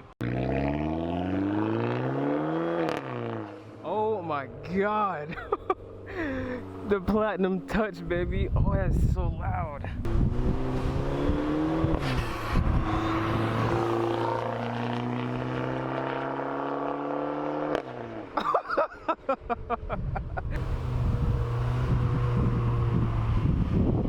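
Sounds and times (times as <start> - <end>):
loud car exhaust droning: 10.0 - 17.1, 20.6 - 24.0.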